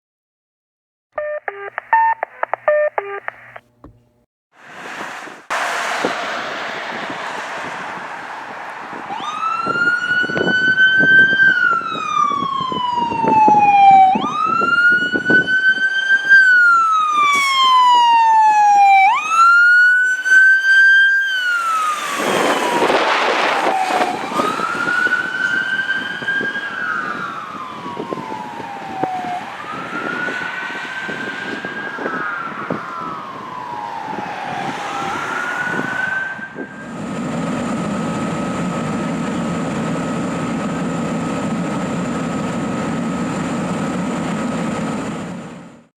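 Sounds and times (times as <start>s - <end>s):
engine and road noise: 1.2s - 45.9s
loud rush of noise: 4.6s - 10.8s, 21.5s - 26.1s
fire engine siren wailing: 6.9s - 45.7s.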